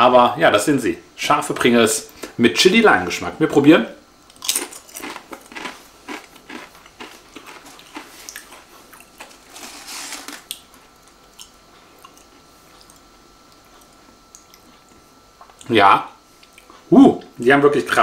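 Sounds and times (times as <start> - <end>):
person crunching a crisp: 4.3 - 10.8.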